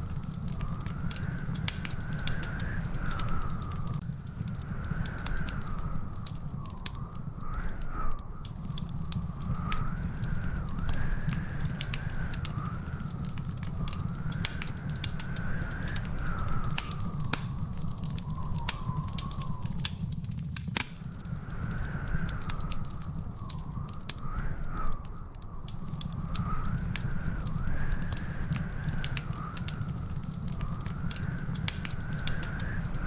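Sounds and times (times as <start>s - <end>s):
low fire rumble: 0.0s - 33.0s
wood fire crackling and popping: 0.0s - 33.0s
faint wavering high whistle: 15.3s - 20.1s.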